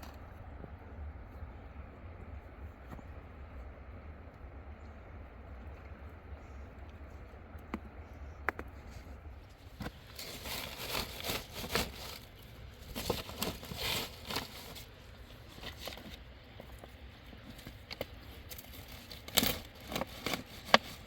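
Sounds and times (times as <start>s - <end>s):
rustling and crinkling handling: 5.7s - 21.0s.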